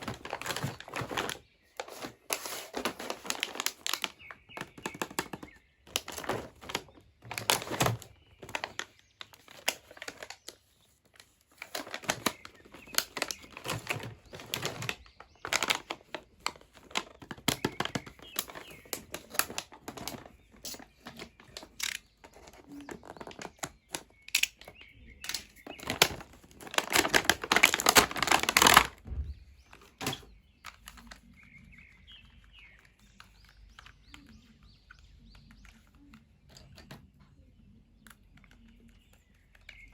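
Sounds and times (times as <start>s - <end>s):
packaging tearing: 0.0s - 10.6s, 11.6s - 24.7s, 25.3s - 29.0s
plastic packaging crinkling: 0.0s - 35.6s.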